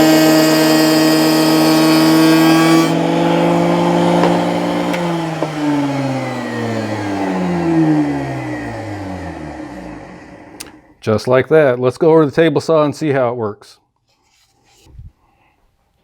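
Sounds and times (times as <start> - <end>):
router motor whine: 0.0 - 10.6.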